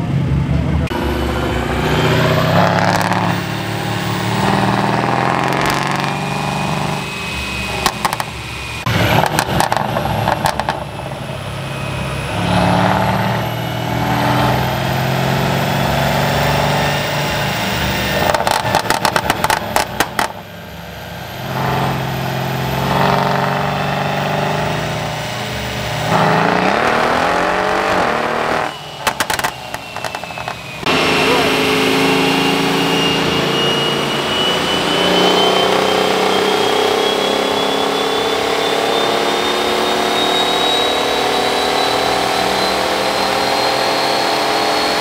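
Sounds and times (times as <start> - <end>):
car engine running: 0.0 - 45.0
faint high whine: 20.5 - 44.2.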